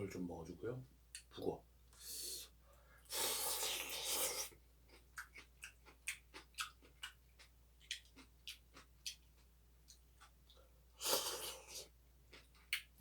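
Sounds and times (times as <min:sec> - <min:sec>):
person slurping soup: 0:03.1 - 0:04.6, 0:11.0 - 0:11.9.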